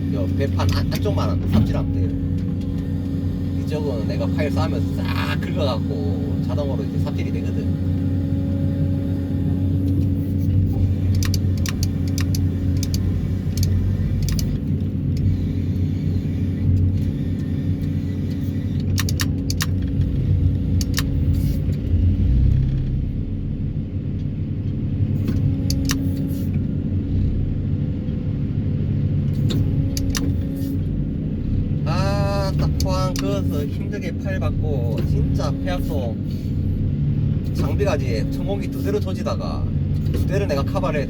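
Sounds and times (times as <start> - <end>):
excavator diesel engine running: 0.0 - 41.0
metallic clicks and clanks: 10.7 - 15.5, 18.0 - 21.6.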